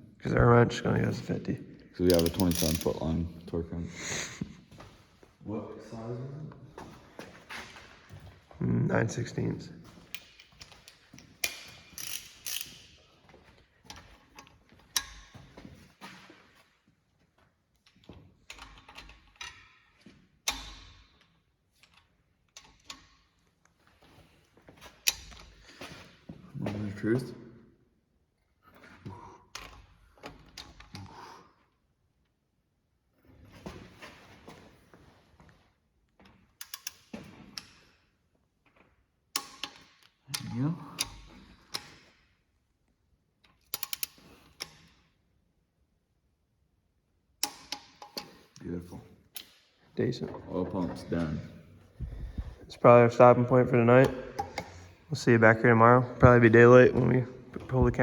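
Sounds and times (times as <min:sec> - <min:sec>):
metallic clicks of hand tools: 0:02.0 - 0:03.0, 0:10.1 - 0:13.0, 0:13.9 - 0:15.3, 0:20.5 - 0:21.0, 0:36.6 - 0:37.8, 0:39.3 - 0:42.1, 0:43.4 - 0:45.0, 0:47.4 - 0:48.4, 0:49.3 - 0:49.7.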